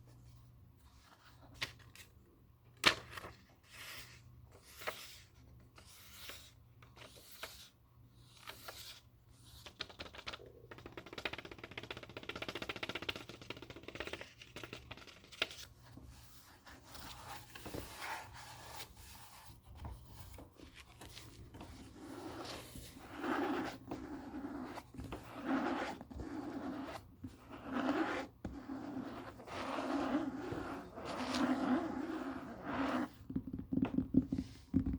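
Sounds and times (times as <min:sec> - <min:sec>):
book pages turning: 0:16.7 - 0:28.3.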